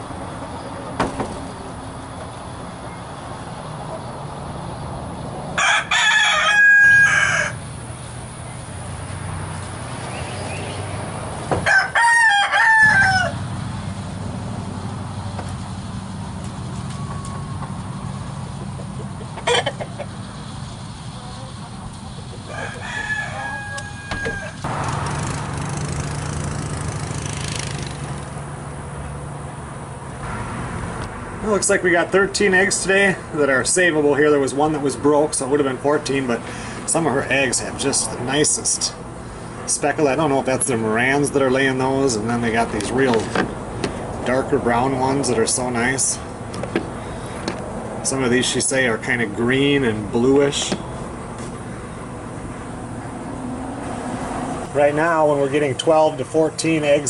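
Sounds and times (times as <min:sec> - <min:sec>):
roosters crowing: 0:00.0 - 0:28.4, 0:40.2 - 0:48.9
hens clucking: 0:16.8 - 0:24.7.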